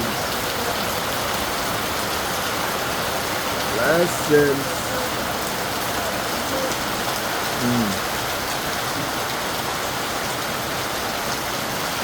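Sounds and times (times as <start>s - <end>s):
rain on a roof: 0.0s - 12.0s.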